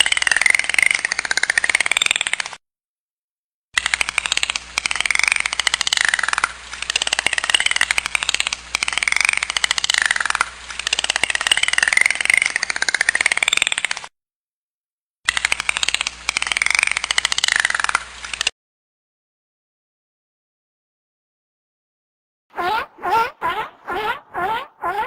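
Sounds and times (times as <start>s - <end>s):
dolphin clicking: 3.8s - 14.1s, 15.3s - 18.5s, 22.6s - 25.0s
dolphin whistles: 22.6s - 25.0s.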